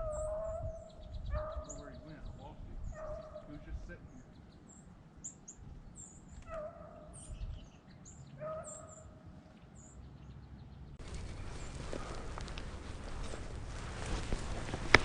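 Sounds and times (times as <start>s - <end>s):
distant hound baying: 0.0s - 2.2s, 2.8s - 3.7s, 6.4s - 7.2s, 8.4s - 9.2s
small birds chirping: 0.0s - 15.0s
steady rustling: 11.0s - 15.0s.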